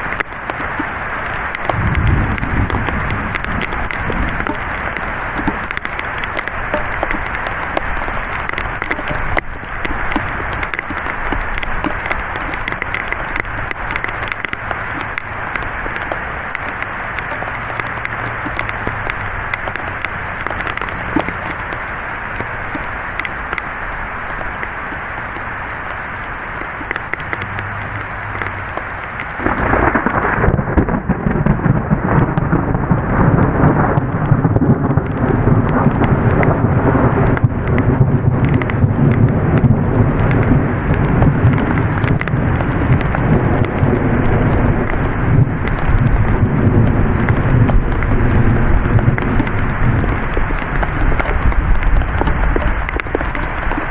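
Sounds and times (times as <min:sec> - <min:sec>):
heavy rain falling: 0:00.0 - 0:53.9
low thunder rumbling: 0:01.6 - 0:21.6, 0:29.4 - 0:53.9
loud crash of thunder: 0:01.7 - 0:04.5, 0:29.4 - 0:49.4.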